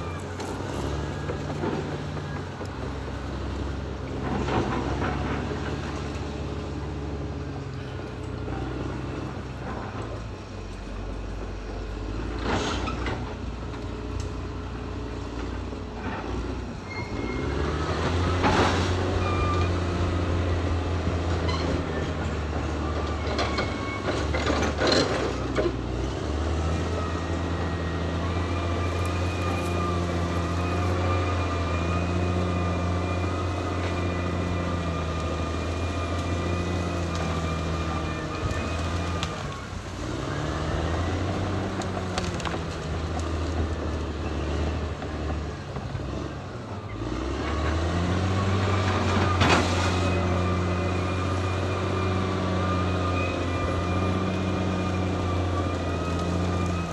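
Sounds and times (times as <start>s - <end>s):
bulldozer diesel engine running: 0.0s - 56.9s
steel tracks clattering and squealing: 0.0s - 56.9s.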